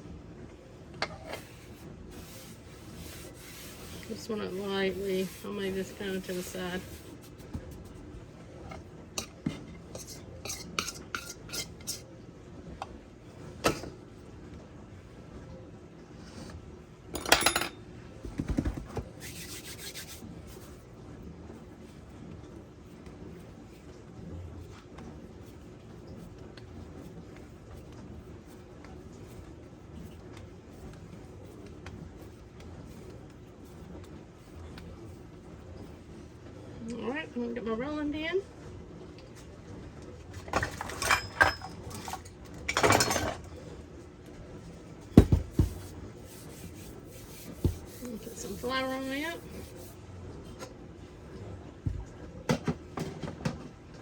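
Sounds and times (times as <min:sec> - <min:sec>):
hands rubbing dough on countertop: 0:01.0 - 0:12.0, 0:18.5 - 0:36.4, 0:44.6 - 0:50.0
kitchen utensils clattering: 0:40.5 - 0:43.5
soft thumps of dough: 0:45.1 - 0:48.2.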